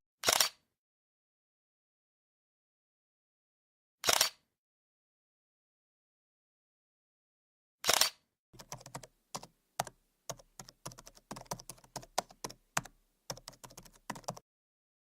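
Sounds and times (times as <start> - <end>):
keyboard key clicks: 8.6 - 14.4.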